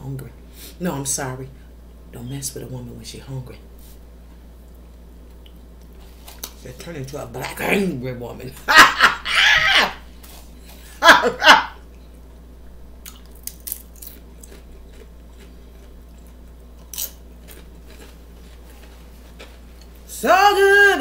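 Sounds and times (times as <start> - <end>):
chip crunching and chewing: 4.7 - 6.6, 13.0 - 20.0.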